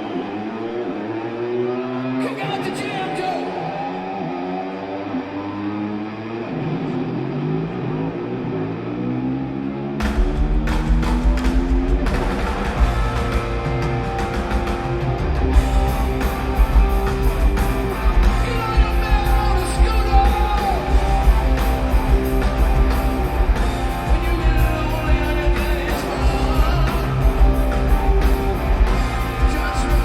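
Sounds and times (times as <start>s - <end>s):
electric guitar: 0.0s - 30.0s
drums: 10.0s - 30.0s
person singing: 18.2s - 21.4s, 23.8s - 27.7s, 28.9s - 30.0s.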